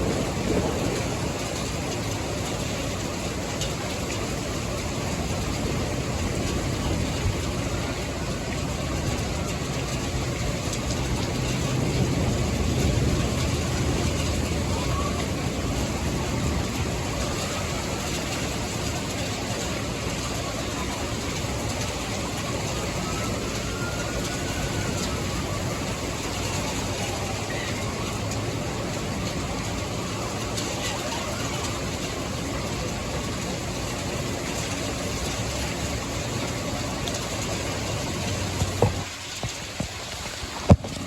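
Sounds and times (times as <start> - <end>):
low thunder rumble: 0.0 - 41.0
steady rain: 0.0 - 41.0.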